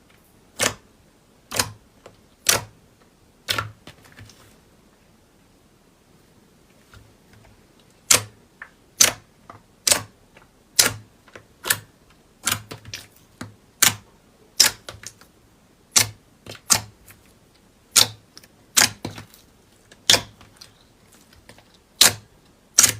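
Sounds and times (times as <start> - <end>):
slime crunching and popping: 17.9 - 19.4, 20.0 - 22.9.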